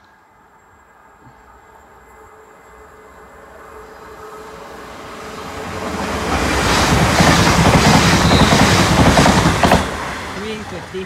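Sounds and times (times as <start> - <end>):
train passing with loud rush: 0.0 - 11.0
wheels clattering on rails: 6.2 - 11.0.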